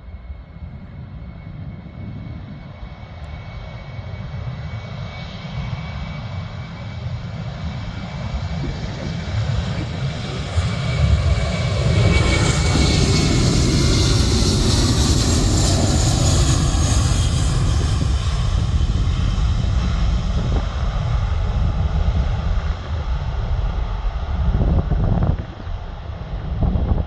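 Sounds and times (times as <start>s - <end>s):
jet engines rumbling: 0.0s - 27.0s
high jet whine: 5.5s - 27.0s.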